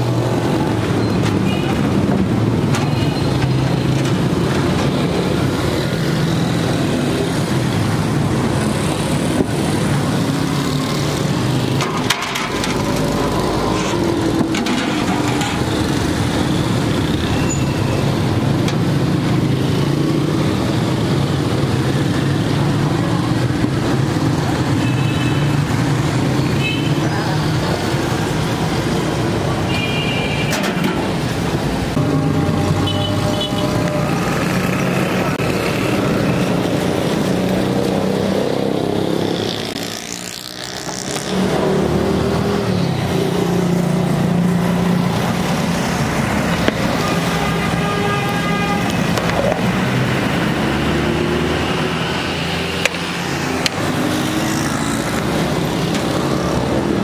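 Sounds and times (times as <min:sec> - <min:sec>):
vehicle engines running: 0:00.0 - 0:24.8
car horn toots: 0:32.3 - 0:34.0.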